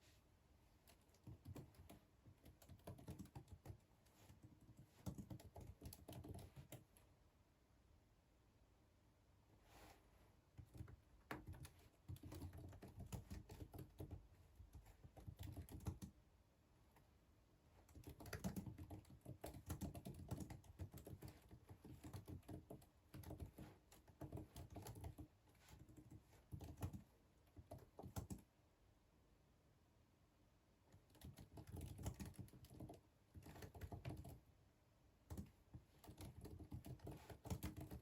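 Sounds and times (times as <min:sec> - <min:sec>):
faint keyboard typing: 0:00.7 - 0:07.2, 0:10.5 - 0:16.3, 0:16.9 - 0:28.5, 0:30.9 - 0:34.5, 0:35.2 - 0:38.0.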